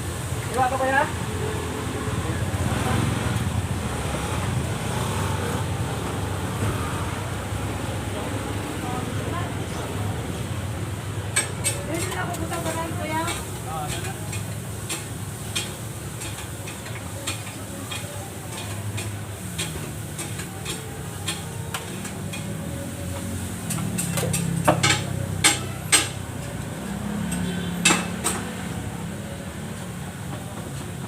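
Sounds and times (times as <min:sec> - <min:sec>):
metal utensils clattering on pots: 0:11.3 - 0:22.6, 0:23.6 - 0:26.6.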